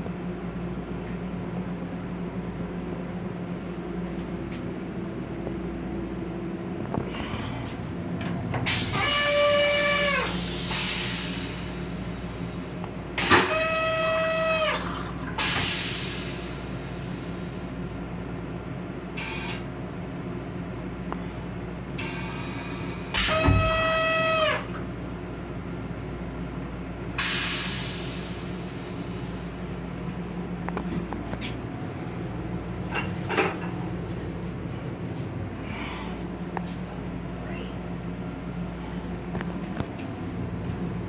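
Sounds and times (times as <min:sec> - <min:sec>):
restroom equipment motor tone: 0:07.4 - 0:24.8, 0:39.8 - 0:41.0.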